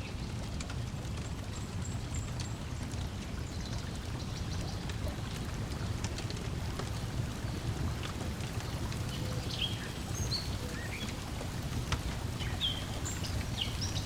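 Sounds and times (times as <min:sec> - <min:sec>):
wood fire crackling: 0:00.1 - 0:14.0
water lapping: 0:04.8 - 0:14.0.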